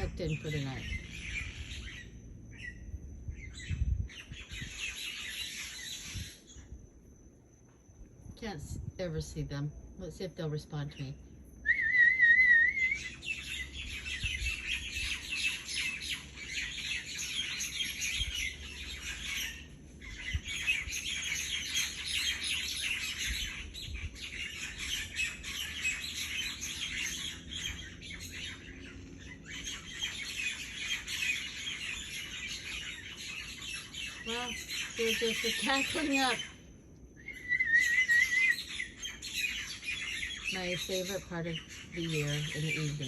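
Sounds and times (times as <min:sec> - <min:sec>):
loud warbling whistle: 0:11.6 - 0:13.2, 0:37.2 - 0:38.6.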